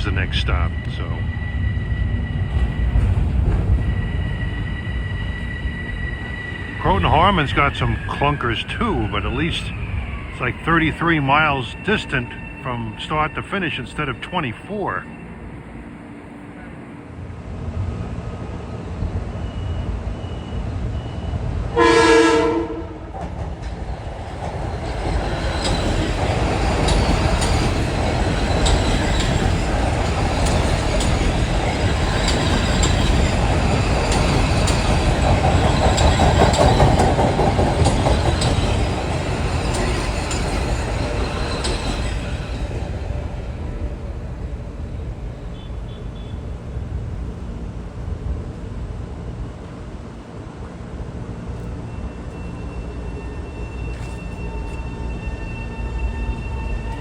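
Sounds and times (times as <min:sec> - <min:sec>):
train rumbling: 0:00.0 - 0:57.0
train horn blast: 0:21.7 - 0:23.2, 0:45.5 - 0:46.5
wheels clacking over rail joints: 0:23.2 - 0:47.5.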